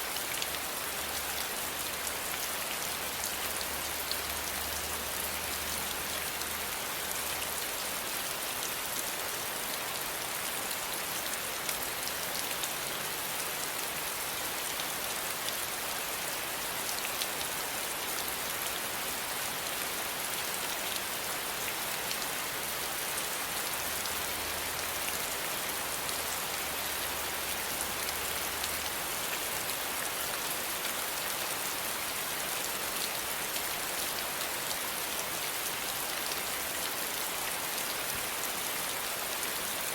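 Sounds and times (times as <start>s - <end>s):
steady rain pattering: 0.0s - 39.9s.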